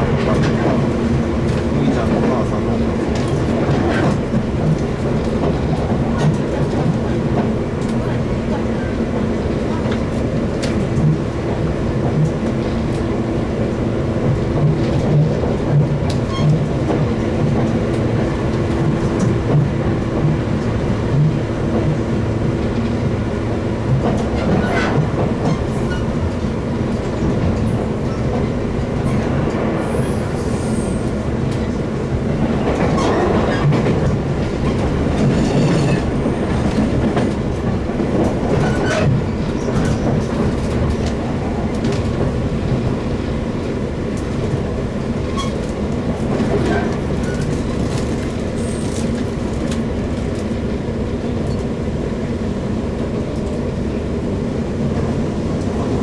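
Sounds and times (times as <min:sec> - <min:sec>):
electric train rumble and hum: 0:00.0 - 0:56.0.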